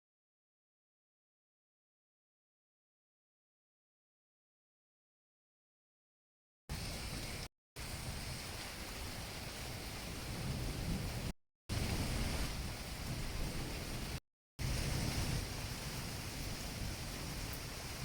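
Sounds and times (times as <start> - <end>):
steady rain: 6.7 - 18.0.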